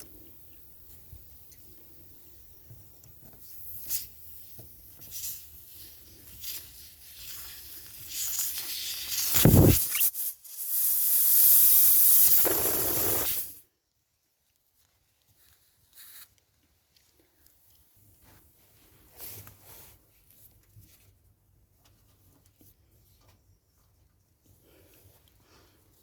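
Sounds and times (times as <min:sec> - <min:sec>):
hiss of spray: 0:03.7 - 0:13.6.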